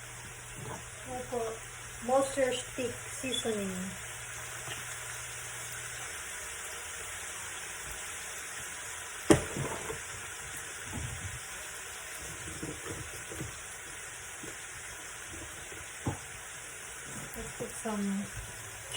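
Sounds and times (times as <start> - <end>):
chicken sizzling in a pan: 0.0 - 18.9
stirring clatters: 12.2 - 16.4.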